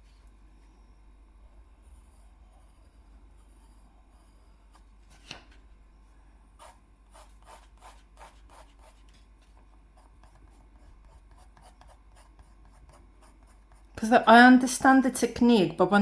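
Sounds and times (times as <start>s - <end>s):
pencil scratching on paper: 1.8s - 4.9s, 6.6s - 15.1s.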